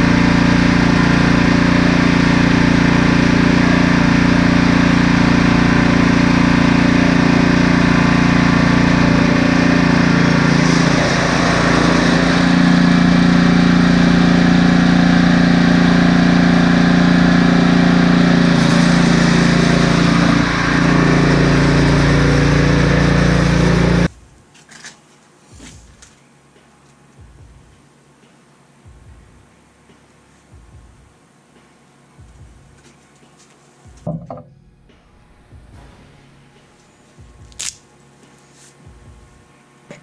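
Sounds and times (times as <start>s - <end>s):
snowblower engine running: 0.0s - 24.1s, 34.5s - 37.7s.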